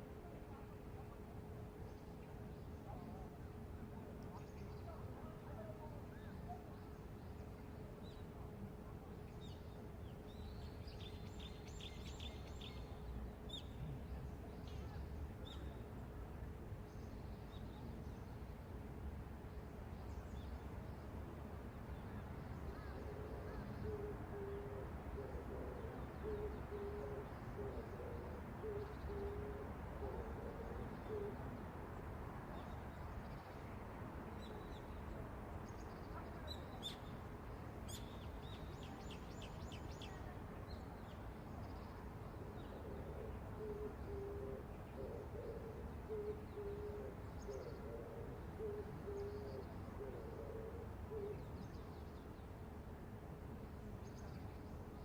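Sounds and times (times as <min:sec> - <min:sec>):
bird hooting or cooing: 0:22.8 - 0:31.5, 0:42.5 - 0:51.6.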